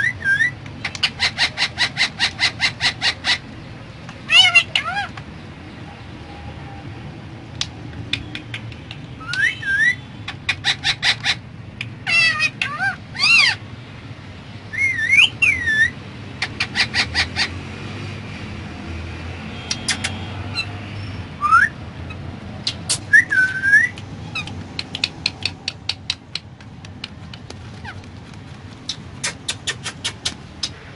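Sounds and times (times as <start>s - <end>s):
parrot whistled calls: 0.0s - 3.4s, 9.2s - 10.0s, 14.7s - 16.0s, 21.4s - 21.8s, 22.6s - 24.5s
parrot clicking: 7.6s - 9.4s, 24.0s - 30.8s.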